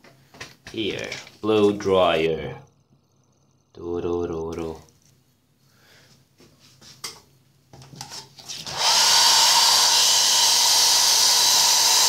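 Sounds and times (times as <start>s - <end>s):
hair dryer blowing: 8.6s - 12.0s.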